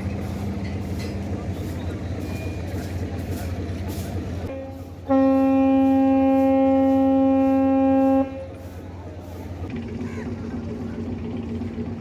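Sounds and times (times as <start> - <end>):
horn long steady blast: 4.5 - 8.6.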